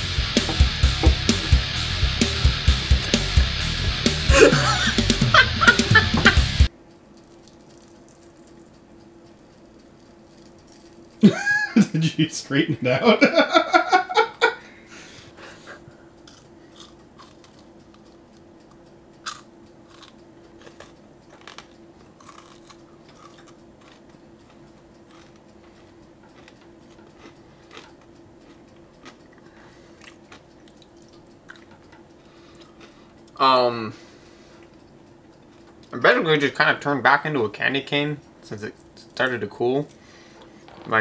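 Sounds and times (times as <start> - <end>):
faint hum: 0.0 - 41.0
laughter: 4.3 - 6.5, 11.2 - 14.7
person crunching hard candy: 16.3 - 18.1, 19.2 - 24.1, 25.1 - 28.0.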